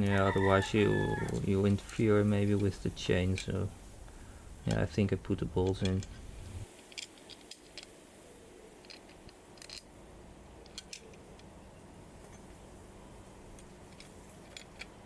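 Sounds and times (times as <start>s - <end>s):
small metal parts clicking: 0.1s - 3.7s, 4.6s - 8.1s, 8.7s - 10.0s, 10.6s - 11.6s, 13.4s - 15.0s.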